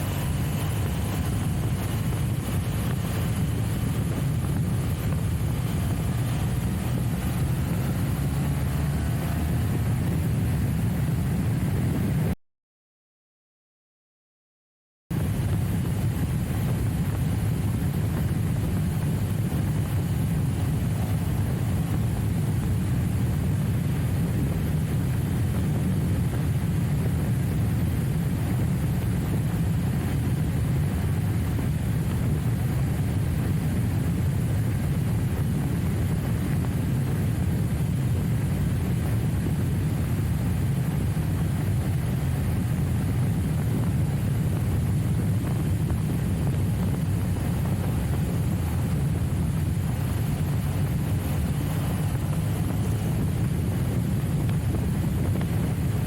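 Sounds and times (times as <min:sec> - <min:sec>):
motorcycle riding drone: 0:00.0 - 0:12.4, 0:15.1 - 0:56.0.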